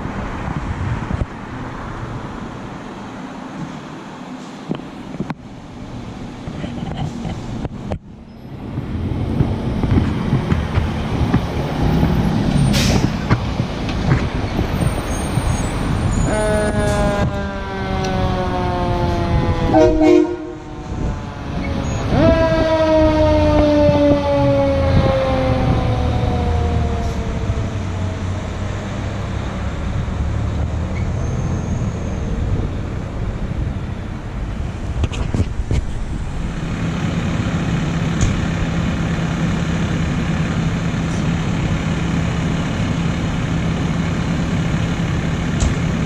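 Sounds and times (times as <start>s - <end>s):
low vehicle rumble: 0.0s - 46.0s
fire truck air horn blasts: 18.8s - 21.1s.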